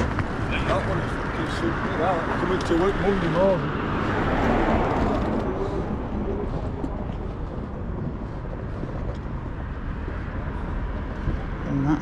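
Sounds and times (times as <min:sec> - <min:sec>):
street traffic noise: 0:00.0 - 0:12.0
vehicle passing by: 0:01.5 - 0:07.0.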